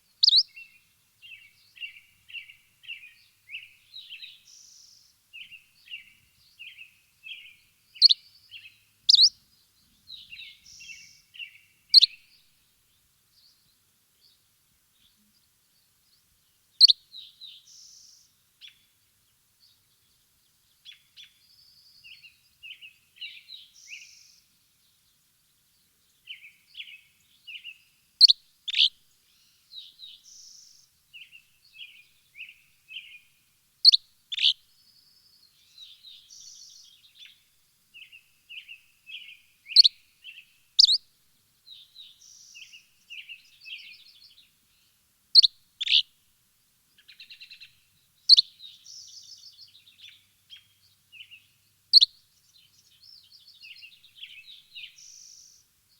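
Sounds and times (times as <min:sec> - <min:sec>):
songbirds chirping and twittering: 0:00.0 - 0:55.9
loud sharp bird chirps: 0:00.2 - 0:00.6, 0:09.1 - 0:09.3, 0:40.8 - 0:41.0, 0:45.4 - 0:46.0, 0:48.3 - 0:50.7.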